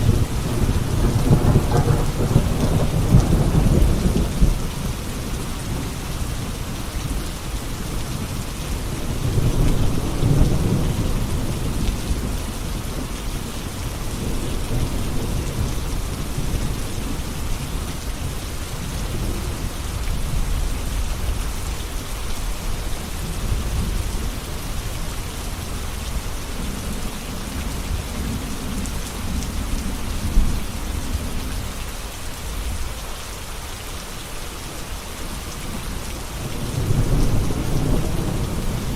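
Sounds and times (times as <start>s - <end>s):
rolling thunder: 0.0s - 4.9s, 36.4s - 38.9s
heavy rainfall: 0.0s - 38.9s.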